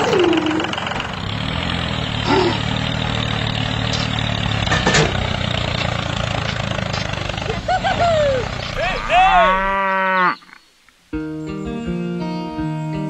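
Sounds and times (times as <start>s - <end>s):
tractor engine humming: 0.0s - 10.1s.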